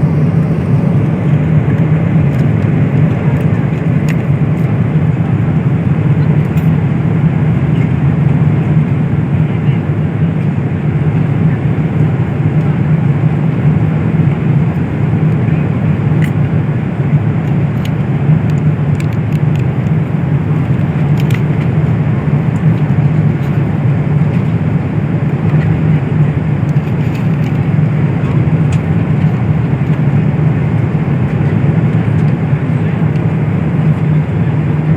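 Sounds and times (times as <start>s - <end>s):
airplane cabin drone: 0.0s - 34.9s.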